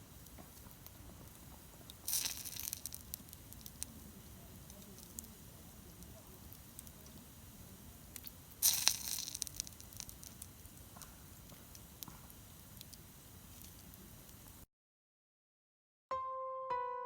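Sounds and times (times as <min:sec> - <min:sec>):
crunching rustle: 0:00.0 - 0:07.2, 0:08.2 - 0:14.1
campfire crackling and popping: 0:00.0 - 0:14.6.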